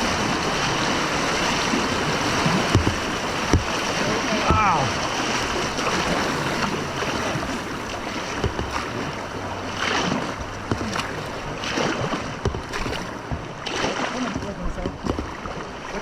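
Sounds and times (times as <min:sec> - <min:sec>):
river whitewater rushing: 0:00.0 - 0:16.0.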